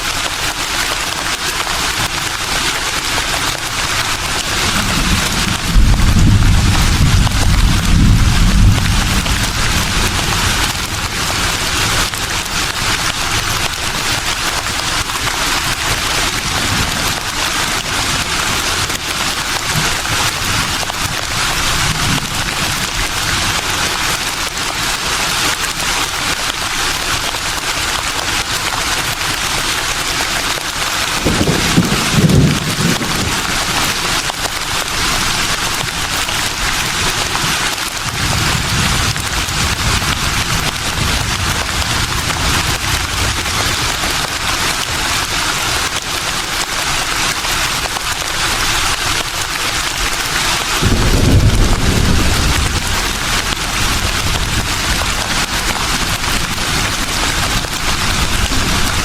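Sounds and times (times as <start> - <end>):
low rumble of wind gust: 4.6 - 11.4.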